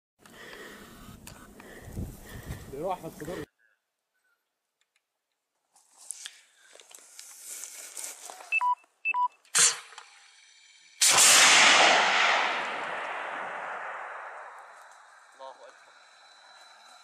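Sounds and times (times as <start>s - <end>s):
short electronic beeps: 8.5s - 9.4s
missile motor rushing blast: 11.0s - 14.5s
sharp crack: 11.0s - 15.4s.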